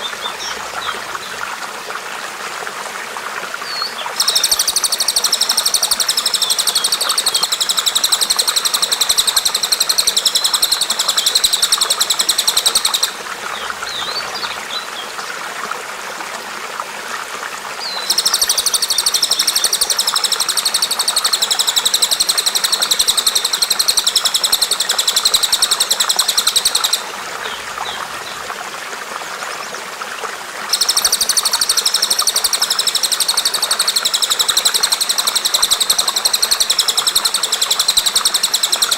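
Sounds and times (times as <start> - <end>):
faint bird chirps: 3.6 - 14.8, 17.8 - 28.4
songbird buzzy trill: 4.1 - 13.2, 30.7 - 38.9.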